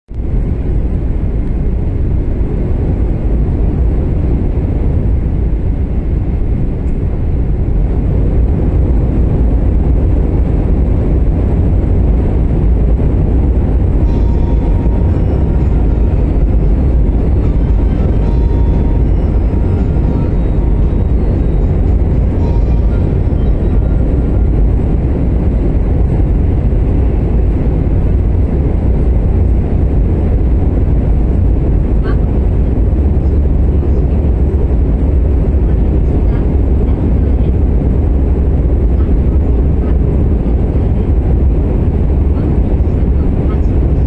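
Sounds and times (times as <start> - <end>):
train cabin rumble: 0.1 - 44.0
faint high tones: 14.0 - 25.0.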